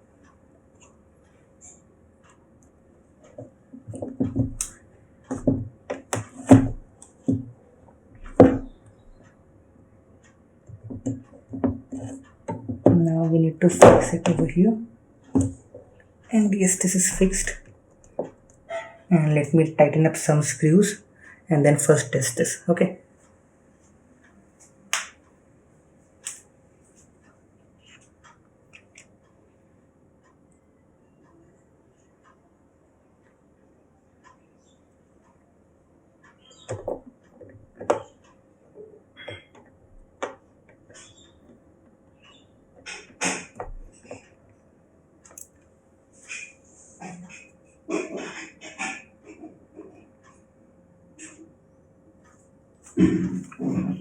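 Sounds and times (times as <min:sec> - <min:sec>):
knocks and clicks handling laptop: 0:03.3 - 0:04.6, 0:05.3 - 0:07.6, 0:08.3 - 0:08.8, 0:10.7 - 0:13.1, 0:36.6 - 0:38.2.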